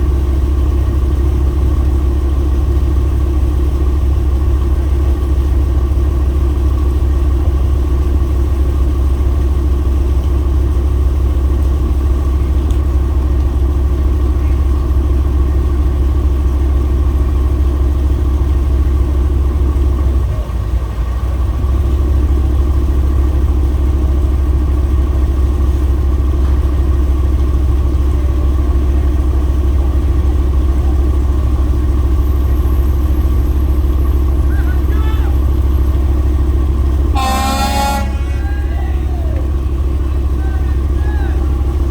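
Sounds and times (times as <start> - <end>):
engine running with low hum: 0.0 - 41.9.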